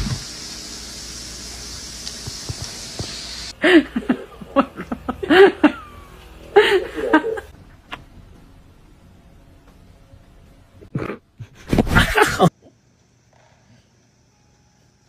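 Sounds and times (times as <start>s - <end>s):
steady hiss: 0.0s - 3.6s.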